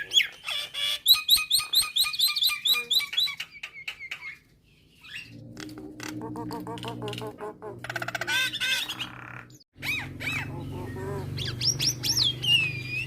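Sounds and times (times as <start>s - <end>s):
myna chirping: 5.1s - 13.0s.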